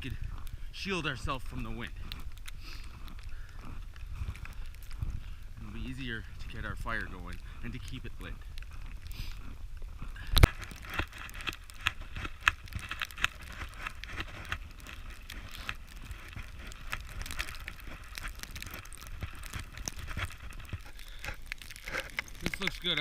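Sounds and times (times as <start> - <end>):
wind buffeting microphone: 0.0 - 11.1.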